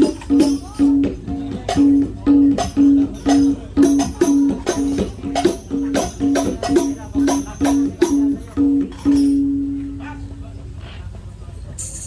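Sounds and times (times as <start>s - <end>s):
hand-drum slaps: 0.0s - 9.6s
low drum notes: 0.0s - 12.0s.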